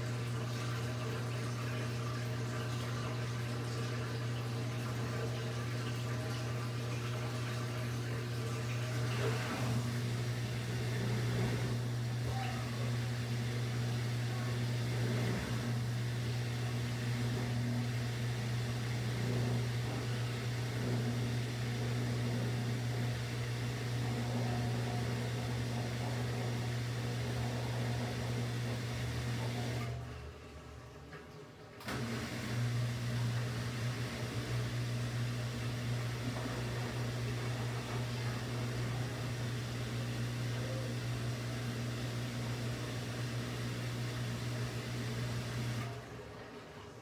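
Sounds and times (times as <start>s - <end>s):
drum and water noise: 0.0s - 29.8s, 33.4s - 40.5s
washing machine motor hum: 0.0s - 47.0s.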